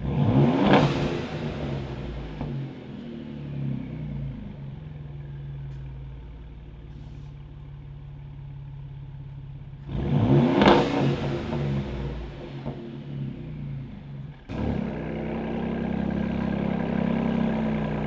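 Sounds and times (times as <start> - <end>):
truck engine idling: 14.3 - 18.0.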